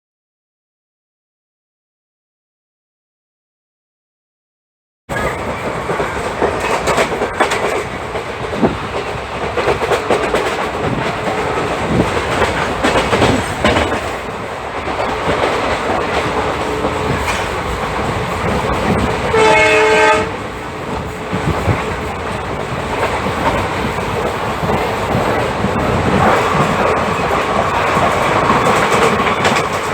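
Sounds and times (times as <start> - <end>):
wheels clattering over rail joints: 5.1 - 19.3, 20.9 - 29.9
train passing with rumble: 5.1 - 29.9
train horn blast: 19.3 - 20.4.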